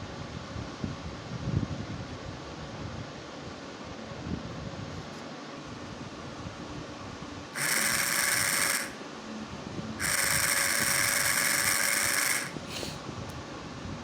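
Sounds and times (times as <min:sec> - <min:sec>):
small motor whirring: 0:07.6 - 0:09.0, 0:10.0 - 0:13.0.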